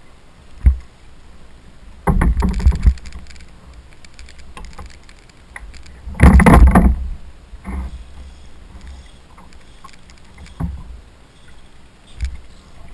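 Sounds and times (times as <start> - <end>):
knocking and rattling on kayak: 2.0 - 11.0
small clicks: 2.1 - 7.0, 7.6 - 12.6.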